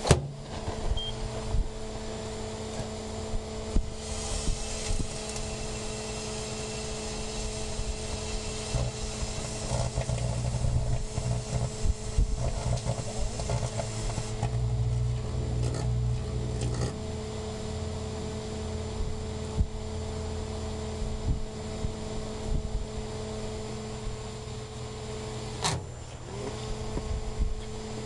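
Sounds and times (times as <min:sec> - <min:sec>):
microwave oven humming: 0:00.0 - 0:28.0.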